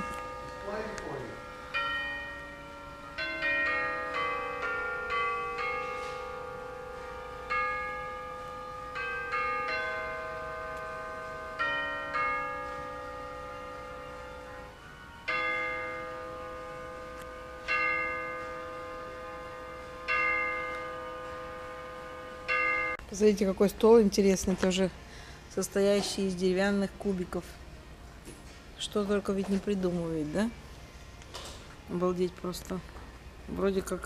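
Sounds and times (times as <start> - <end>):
clock striking the hour: 0.0 - 14.5, 15.2 - 23.0
clock chiming a melody: 0.0 - 23.0.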